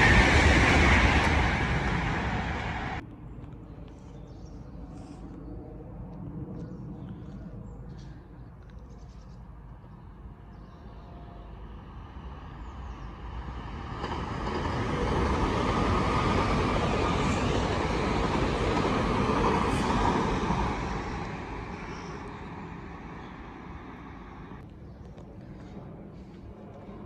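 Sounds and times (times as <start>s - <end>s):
train passing at speed: 0.0s - 3.1s, 10.1s - 27.0s.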